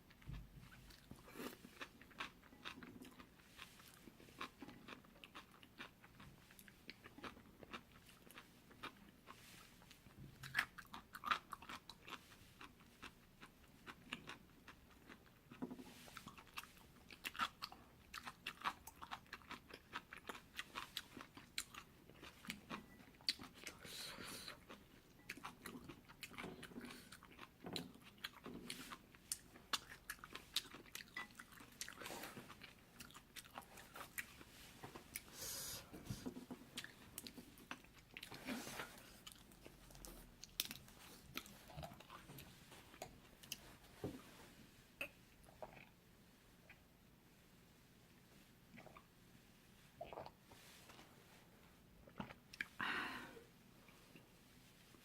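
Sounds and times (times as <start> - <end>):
chewing noodles: 0.1 - 35.4, 36.0 - 43.7.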